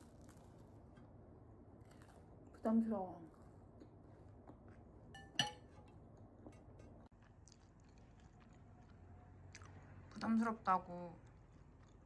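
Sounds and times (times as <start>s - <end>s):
tableware clink: 5.2s - 5.9s
faint chewing: 6.2s - 12.0s.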